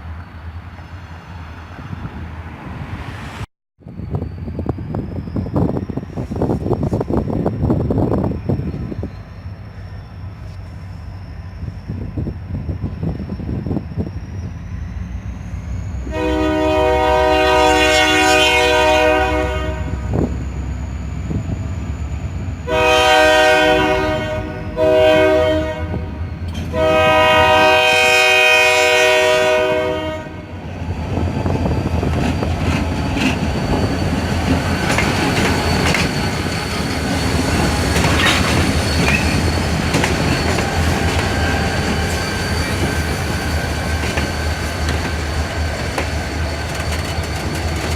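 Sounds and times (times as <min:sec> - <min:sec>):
locomotive air horn: 0:16.0 - 0:20.3, 0:22.6 - 0:30.6
wheels clicking over rail joints: 0:43.9 - 0:47.9.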